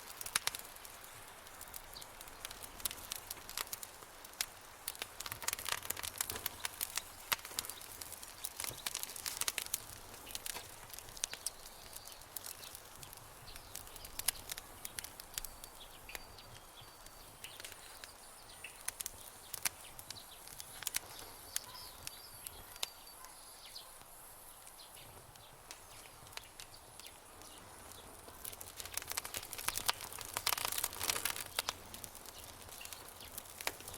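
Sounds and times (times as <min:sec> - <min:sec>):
campfire crackling and popping: 0:00.0 - 0:33.9
faint high chirps: 0:20.2 - 0:24.0.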